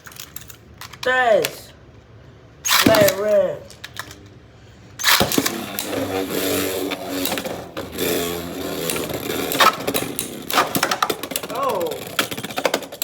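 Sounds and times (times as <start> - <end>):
tops clashing and scraping: 2.7 - 3.5, 5.0 - 13.0
spinning tops whirring: 5.0 - 13.0.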